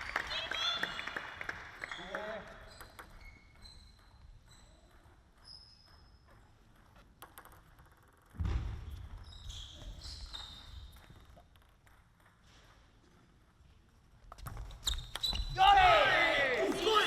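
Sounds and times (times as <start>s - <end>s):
shoes squeaking on floor: 1.9s - 6.6s, 8.9s - 11.4s
ping-pong ball clicks: 6.7s - 8.4s.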